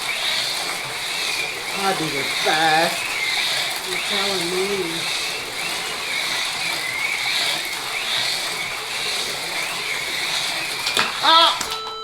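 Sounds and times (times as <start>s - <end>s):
slot car motors whining: 0.0s - 12.0s.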